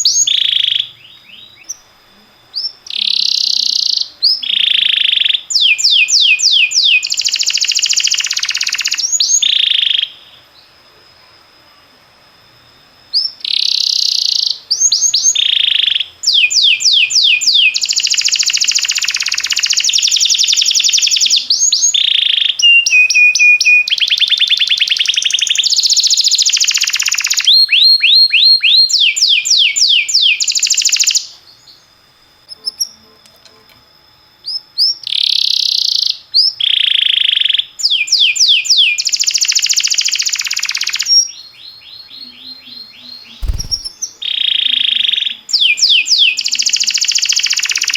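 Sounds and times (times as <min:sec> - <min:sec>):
canary singing: 0:41.6 - 0:44.2.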